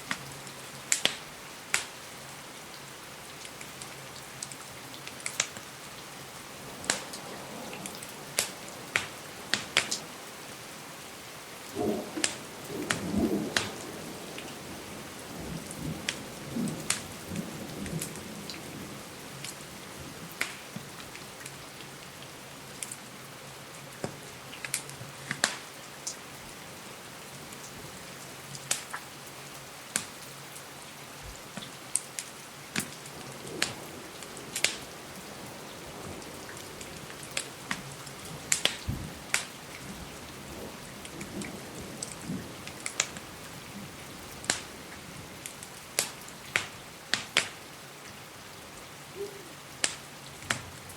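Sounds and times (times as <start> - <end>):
steady rain: 0.0 - 50.9
wood fire crackling: 0.9 - 2.0, 3.4 - 10.3, 11.6 - 18.2, 20.4 - 21.5, 24.0 - 26.2, 28.5 - 29.0, 29.9 - 30.1, 31.4 - 47.6, 49.8 - 50.9.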